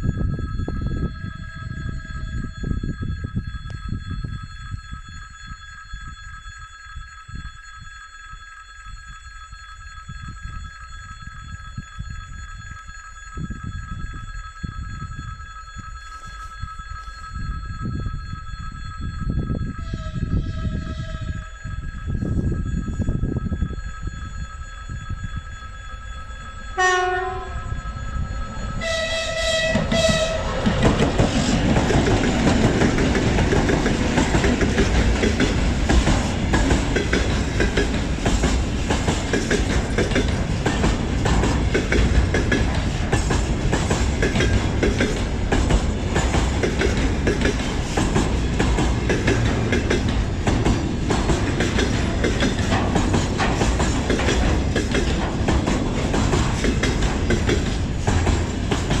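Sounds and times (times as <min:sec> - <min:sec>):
locomotive horn blasts: 0:19.7 - 0:21.7, 0:26.0 - 0:31.5
train wheels clattering over rail joints: 0:29.7 - 0:59.0.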